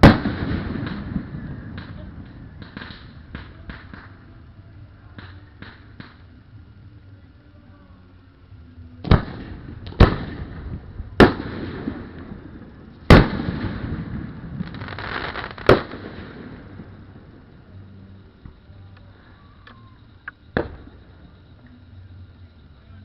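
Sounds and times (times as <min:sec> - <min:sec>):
fireworks bursting with bangs: 0:00.0 - 0:06.8, 0:09.0 - 0:18.7, 0:20.0 - 0:21.5
hiss after bangs: 0:05.1 - 0:06.4, 0:09.0 - 0:17.2.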